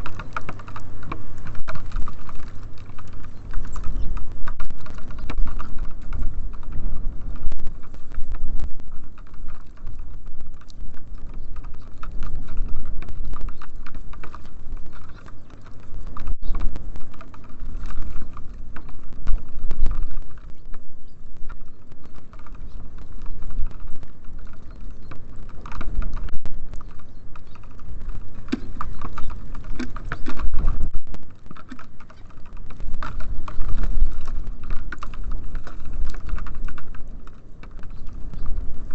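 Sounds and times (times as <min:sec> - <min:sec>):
birds pecking on wooden feeder: 0:00.0 - 0:38.9
steady low rumble: 0:00.0 - 0:38.9.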